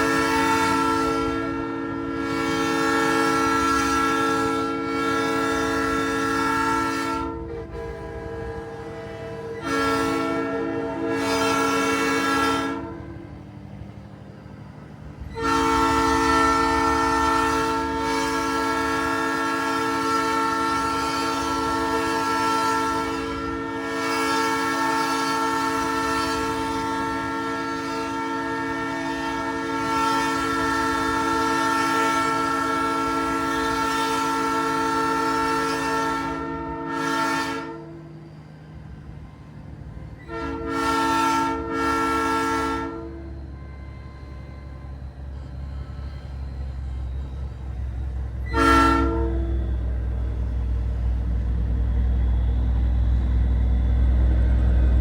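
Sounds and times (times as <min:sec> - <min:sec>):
train horn blasts: 0:00.0 - 0:14.5, 0:15.1 - 0:55.0
truck engine rumble: 0:49.3 - 0:55.0.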